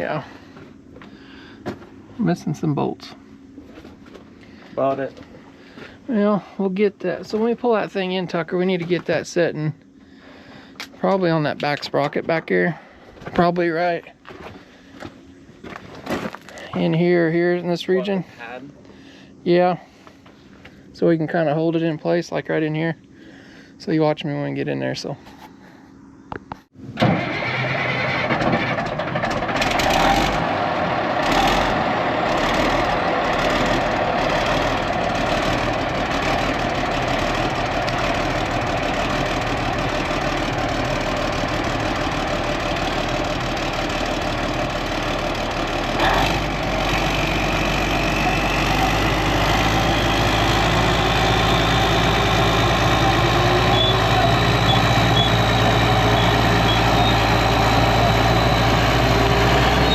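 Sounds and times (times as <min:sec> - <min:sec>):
diesel engine running: 0:00.0 - 0:21.9, 0:25.6 - 0:59.9
rising engine whine: 0:24.5 - 0:59.9
deep hum: 0:29.7 - 0:59.9.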